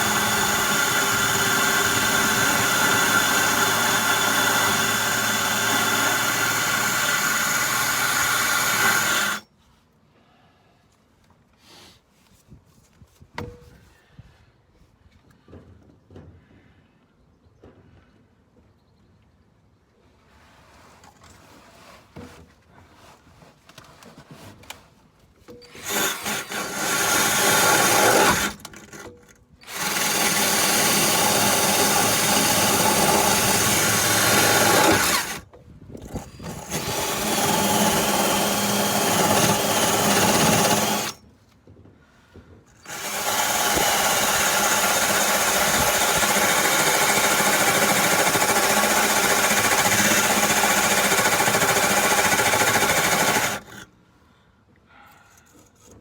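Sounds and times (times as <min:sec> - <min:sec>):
power drill scouring rust: 0:00.0 - 0:09.4, 0:25.6 - 0:41.3, 0:42.7 - 0:53.9.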